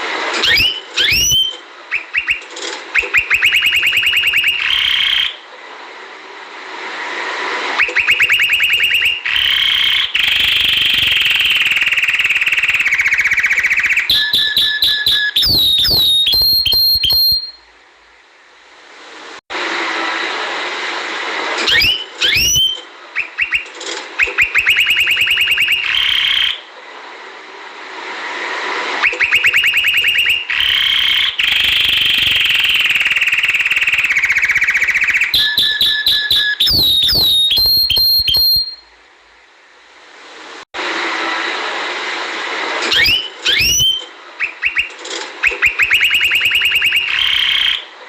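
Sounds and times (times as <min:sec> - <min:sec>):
canary singing: 0:00.4 - 0:05.4, 0:07.8 - 0:17.6, 0:21.7 - 0:26.6, 0:29.0 - 0:38.8, 0:42.9 - 0:47.9.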